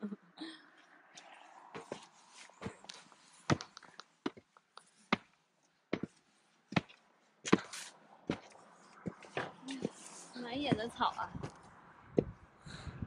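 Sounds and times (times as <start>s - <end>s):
footsteps on wooden boards: 1.8s - 4.5s, 5.1s - 5.3s, 5.9s - 11.6s.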